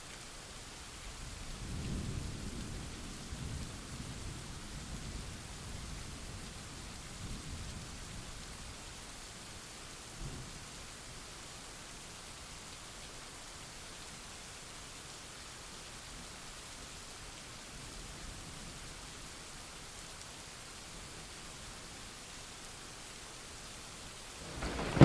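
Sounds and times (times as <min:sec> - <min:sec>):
heavy rain hiss: 0:00.0 - 0:25.0
rolling thunder: 0:24.4 - 0:25.0.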